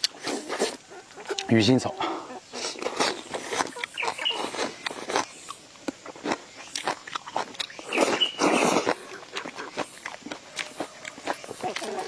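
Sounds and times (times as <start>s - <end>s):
chewing and crunching food: 0.0s - 12.0s
mouth clicks: 6.6s - 12.0s.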